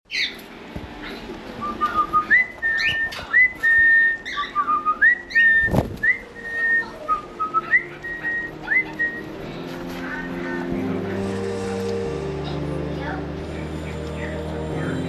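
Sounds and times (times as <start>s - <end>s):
cockatiel whistling: 1.6s - 9.3s.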